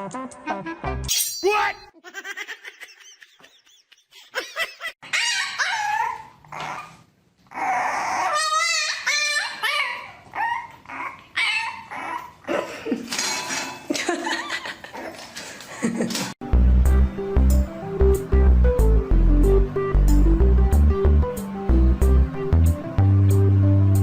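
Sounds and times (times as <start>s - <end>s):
dog yipping and whining: 5.0s - 12.5s.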